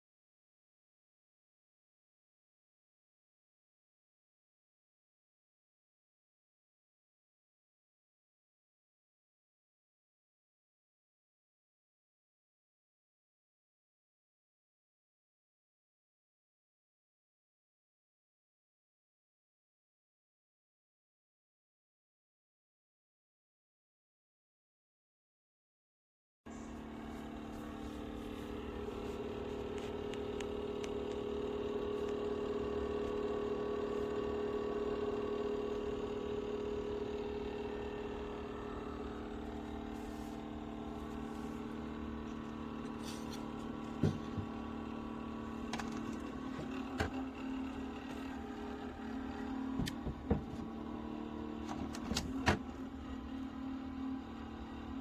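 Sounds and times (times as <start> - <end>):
motor humming: 26.5 - 55.0.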